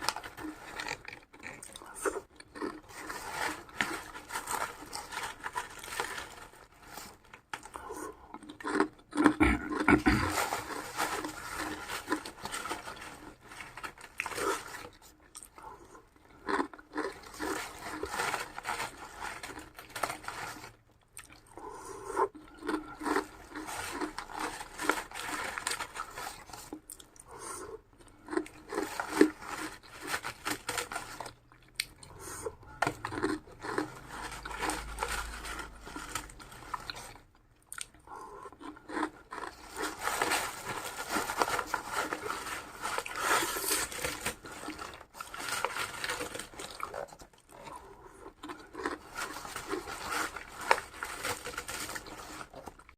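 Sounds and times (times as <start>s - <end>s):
person chewing crunchy food: 0.0s - 52.9s.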